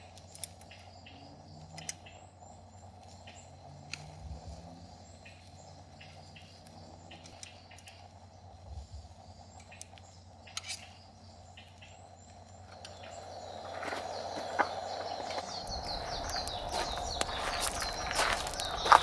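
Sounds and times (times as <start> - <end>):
bird chirps: 10.5 - 19.0.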